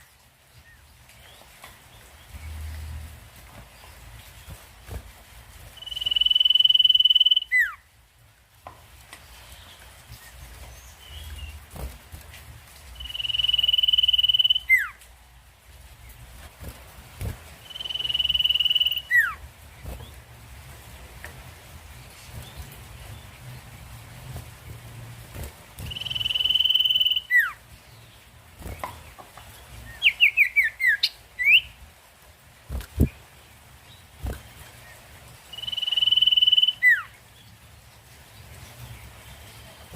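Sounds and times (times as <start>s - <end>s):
songbird trilling: 5.8s - 7.8s, 13.0s - 15.0s, 17.6s - 19.4s, 25.8s - 27.6s, 35.5s - 37.1s.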